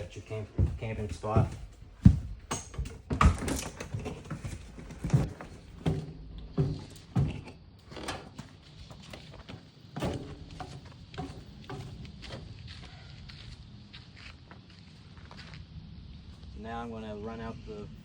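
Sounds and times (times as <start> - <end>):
dull thuds: 0.0 - 12.7
footsteps: 0.0 - 15.7.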